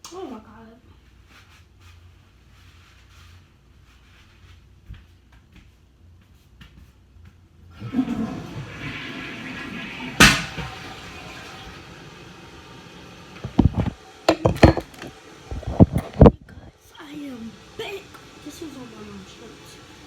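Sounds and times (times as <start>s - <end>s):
toilet flushing: 7.7s - 20.0s.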